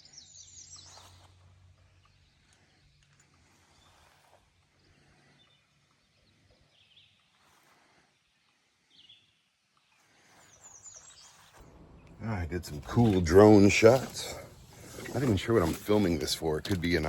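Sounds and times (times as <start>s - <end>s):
faint bird chirps: 0.0s - 12.2s.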